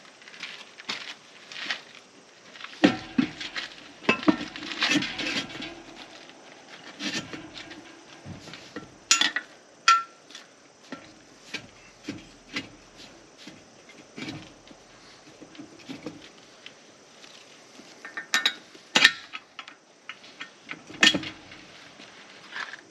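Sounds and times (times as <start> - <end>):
knocks and metallic clanks: 2.8 - 10.2, 10.9 - 16.2, 20.8 - 21.6.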